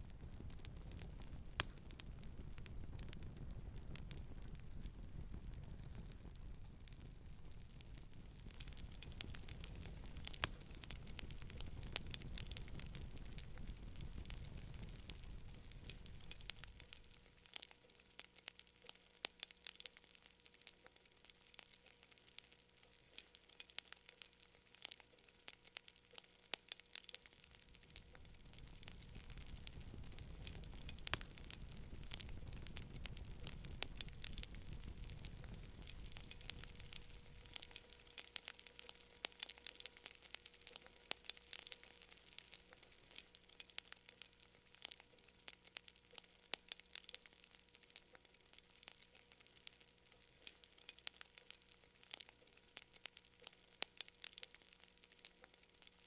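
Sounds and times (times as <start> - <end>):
low rushing of flames: 0.0 - 17.2, 27.6 - 37.9
fire crackling and popping: 0.0 - 56.0
soft steady hiss: 0.0 - 56.0.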